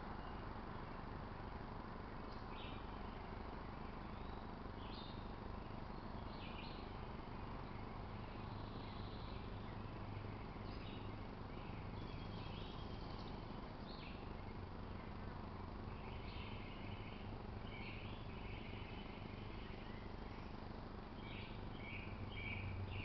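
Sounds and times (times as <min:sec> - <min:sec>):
outdoor background hiss: 0:00.0 - 0:23.0
small birds chirping: 0:00.0 - 0:23.0.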